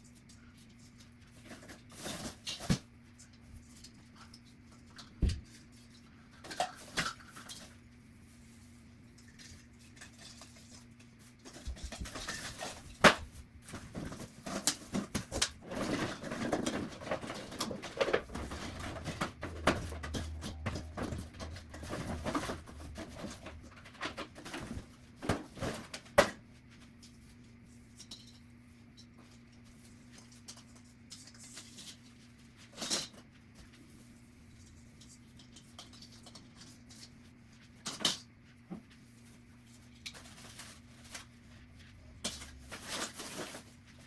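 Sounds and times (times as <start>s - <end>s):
household items clinking and knocking: 13.9s - 25.8s.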